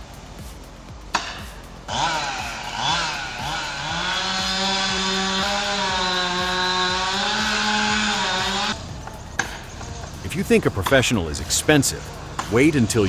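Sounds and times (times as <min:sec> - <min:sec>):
chainsaw revving: 0:01.9 - 0:10.8.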